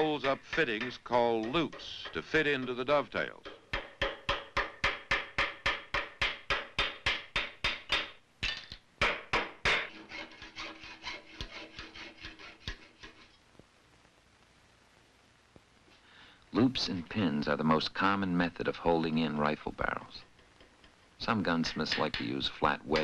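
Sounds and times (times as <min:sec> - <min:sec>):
small hammer tapping on metal: 0:00.0 - 0:09.9, 0:20.2 - 0:21.0.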